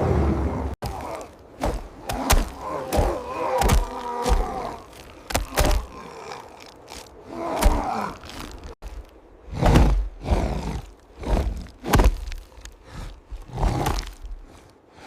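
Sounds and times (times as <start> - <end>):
groaning voice-like sounds: 0.0 - 9.0
heavy thuds and whacks: 1.6 - 4.5, 9.5 - 10.1, 11.3 - 12.4.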